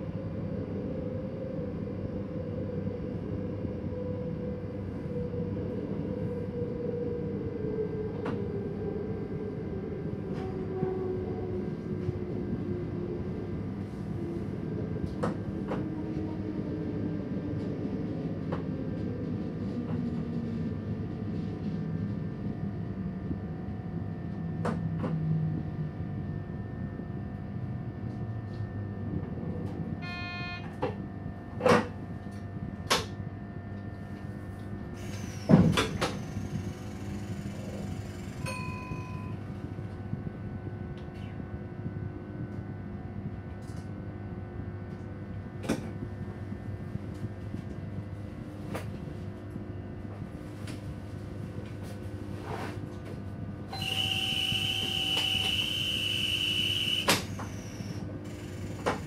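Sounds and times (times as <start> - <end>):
train running rumble: 0.0 - 55.8
short beeps: 30.0 - 30.7, 53.7 - 57.8.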